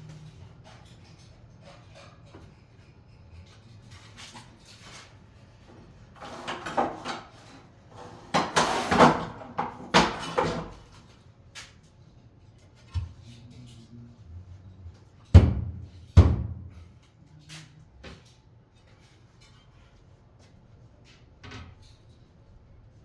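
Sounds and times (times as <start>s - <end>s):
hard objects knocking and clattering: 8.3s - 10.9s.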